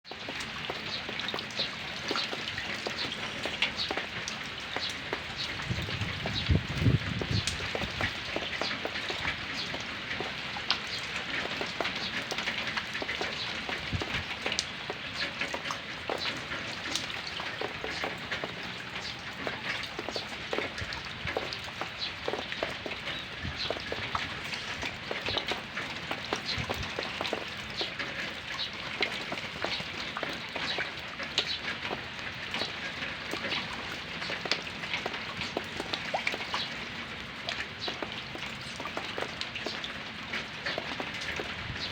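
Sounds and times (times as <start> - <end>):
rain falling: 0.0 - 41.9
drips pattering on surface: 0.1 - 41.9.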